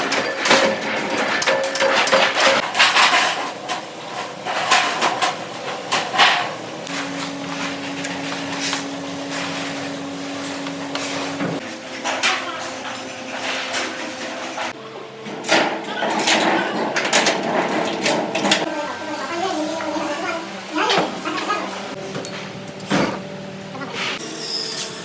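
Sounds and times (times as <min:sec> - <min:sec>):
machine humming: 0:05.2 - 0:11.6.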